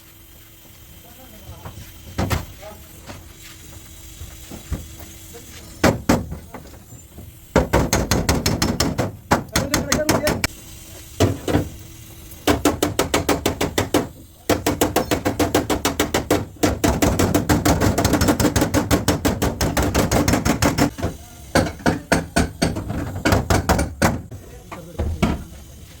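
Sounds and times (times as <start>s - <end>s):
hammer striking steel panel: 7.6s - 10.5s, 12.4s - 24.3s.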